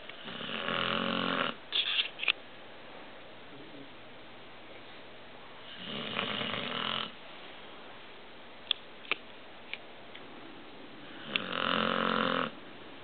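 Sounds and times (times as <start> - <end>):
dog snoring: 0.2 - 1.6, 5.6 - 7.2, 11.0 - 12.6.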